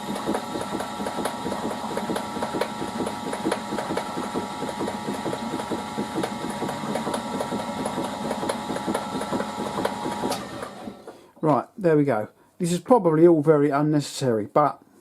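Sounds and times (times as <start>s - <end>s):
machine spindle running: 0.0s - 11.1s.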